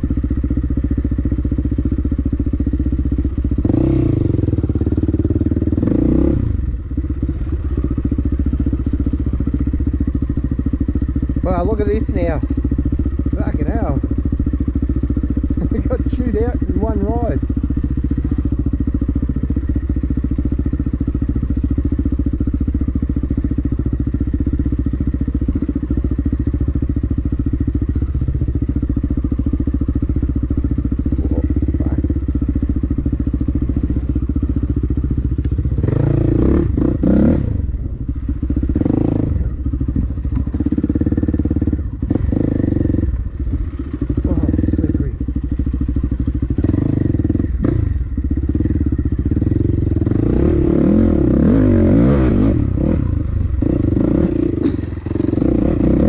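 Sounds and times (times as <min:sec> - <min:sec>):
dirt bike engine revving: 0:03.4 - 0:14.5, 0:15.2 - 0:20.4, 0:29.6 - 0:56.0.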